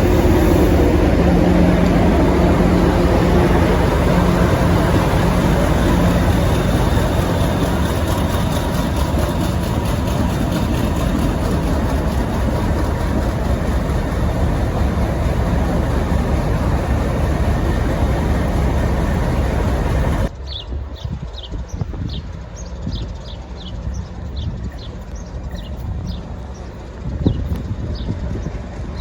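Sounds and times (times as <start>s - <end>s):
birds chirping: 0.0s - 20.6s
diesel locomotive engine rumble: 0.0s - 29.0s
rail noise: 0.0s - 29.0s.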